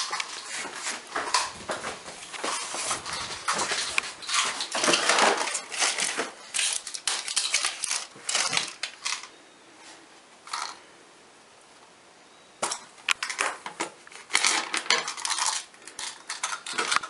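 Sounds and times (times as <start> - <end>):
blister packs crinkling: 0.0 - 9.3, 13.1 - 17.0.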